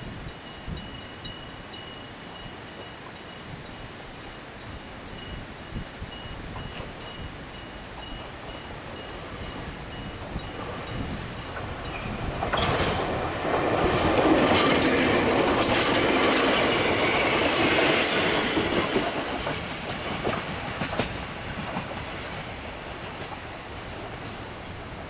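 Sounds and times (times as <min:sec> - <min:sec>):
electric train passing: 0:00.0 - 0:25.0
train wheels clacking: 0:08.0 - 0:24.4.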